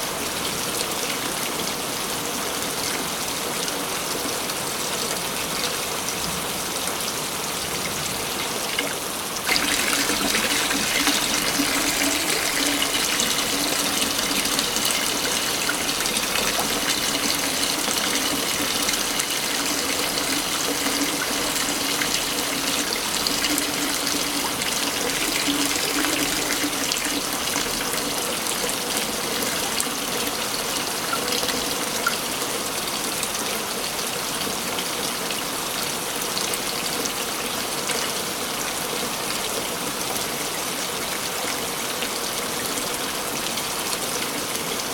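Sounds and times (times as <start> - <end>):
waterfall rushing: 9.0 - 29.2.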